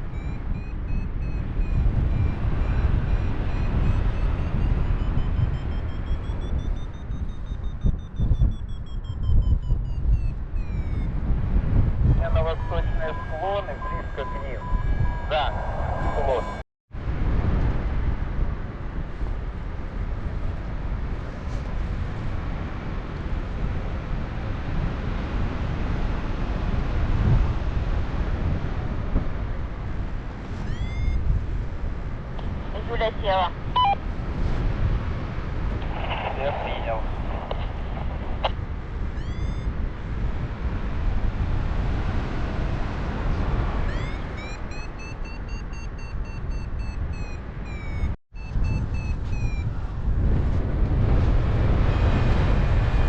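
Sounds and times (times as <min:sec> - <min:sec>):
variometer short high beeps: 0:00.0 - 0:11.3, 0:12.0 - 0:16.6, 0:30.6 - 0:31.2, 0:33.8 - 0:34.0, 0:39.2 - 0:39.7, 0:43.9 - 0:49.9
wind buffeting microphone: 0:00.0 - 0:53.0.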